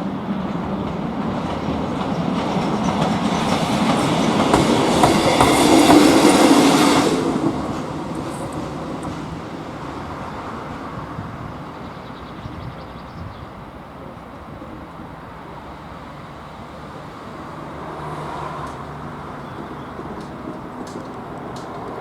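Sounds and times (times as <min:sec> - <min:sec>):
passenger train rumbling: 0:00.0 - 0:22.0.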